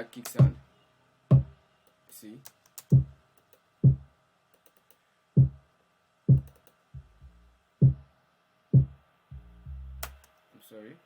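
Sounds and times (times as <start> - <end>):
kick drum thumps: 0.4 - 0.6, 1.3 - 1.6, 2.9 - 3.2, 3.8 - 4.1, 5.4 - 5.6, 6.3 - 6.5, 7.8 - 8.1, 8.8 - 9.4.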